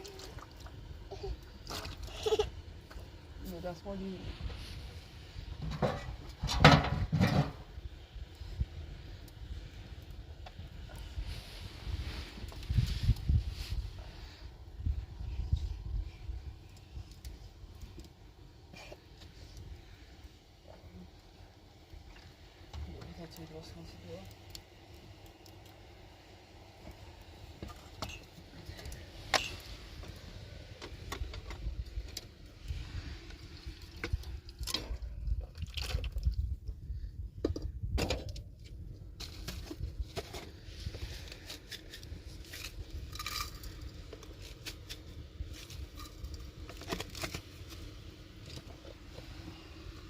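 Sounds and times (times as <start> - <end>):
wind rumble on microphone: 3.9 - 17.5, 30.2 - 41.4.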